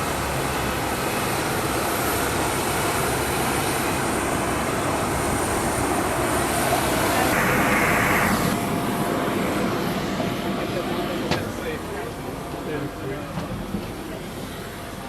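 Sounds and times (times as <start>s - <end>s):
aircraft rushing hum: 0.0s - 15.0s
loud hiss: 6.8s - 8.6s.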